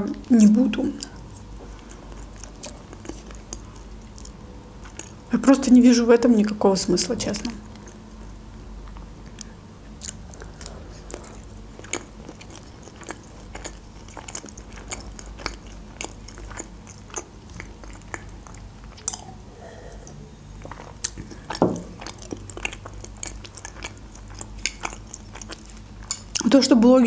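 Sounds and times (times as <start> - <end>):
chewing with mouth clicks: 1.0 - 5.2, 7.7 - 19.4, 20.0 - 26.6.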